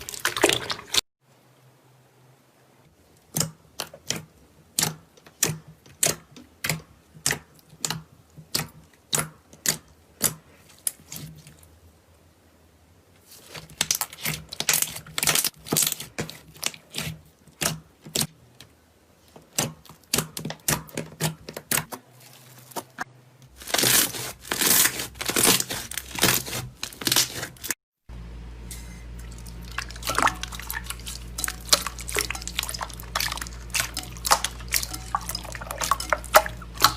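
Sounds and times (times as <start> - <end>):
slime crackling and crunching: 23.5 - 27.8, 29.3 - 36.9.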